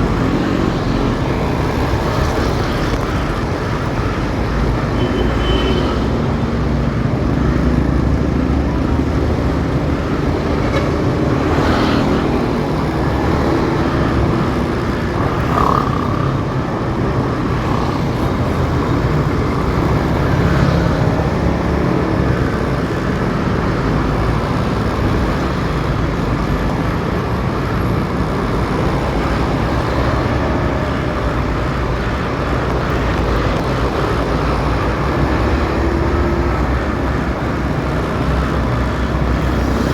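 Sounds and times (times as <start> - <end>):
motorcycle engine: 10.0 - 26.0.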